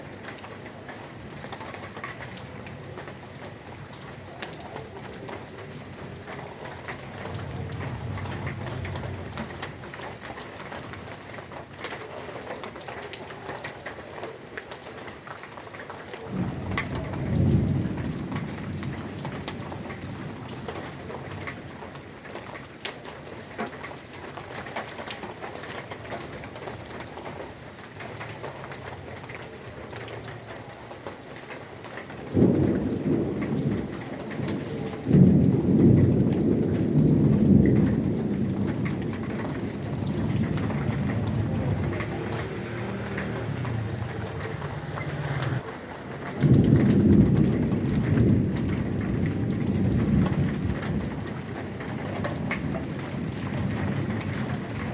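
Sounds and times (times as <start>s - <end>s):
heavy rain falling: 0.0s - 54.9s
thunder rumbling: 1.3s - 10.2s, 16.3s - 21.7s, 32.2s - 54.9s.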